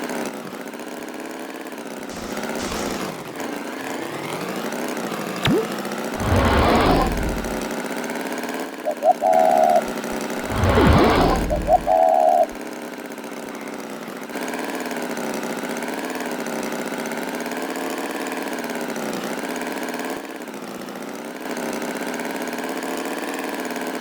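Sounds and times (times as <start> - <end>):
small engine running: 2.1 - 4.7, 6.2 - 7.6, 10.4 - 12.2.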